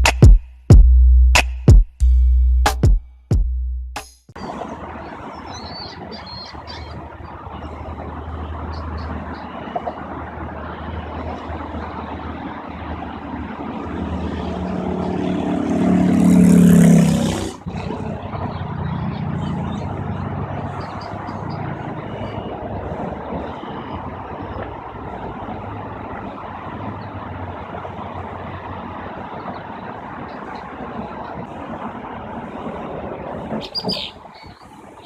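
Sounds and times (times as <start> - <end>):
traffic rumble: 4.3 - 35.0
vehicle passing close: 4.4 - 35.0.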